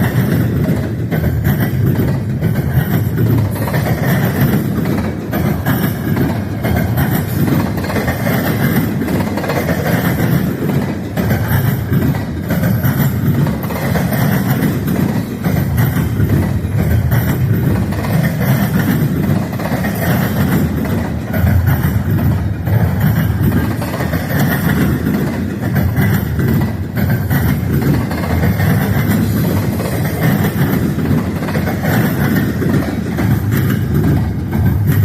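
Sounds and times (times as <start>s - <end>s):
freight train rumbling past: 0.0s - 35.0s
rail clatter: 0.0s - 35.0s.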